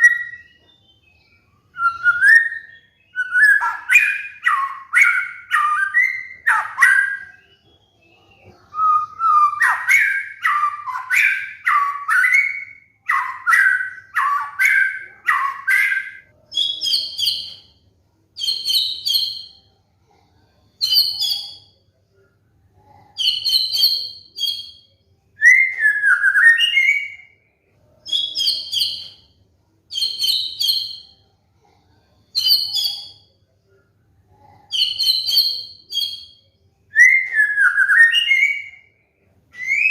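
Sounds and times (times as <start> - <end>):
songbird whistling: 0.0 - 17.7, 34.8 - 38.9, 39.5 - 39.9.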